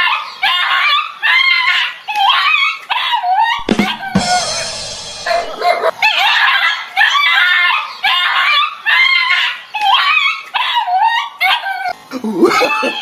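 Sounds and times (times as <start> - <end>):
dog barking and yelping: 5.3 - 12.0.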